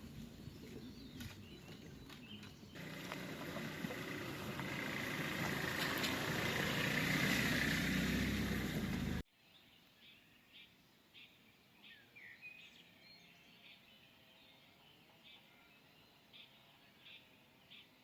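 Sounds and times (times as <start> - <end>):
car road and engine noise: 0.0 - 9.3
faint birds chirping: 0.0 - 18.0.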